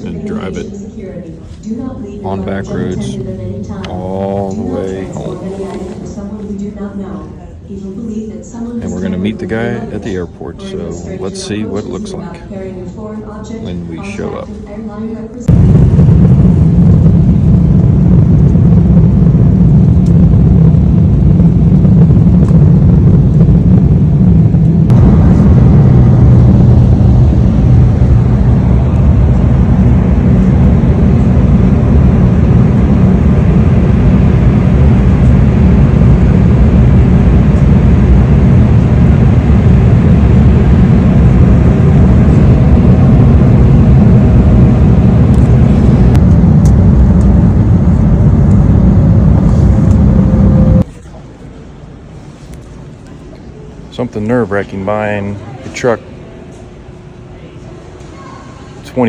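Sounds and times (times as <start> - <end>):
vehicle engine and road rumble: 15.4 - 50.9.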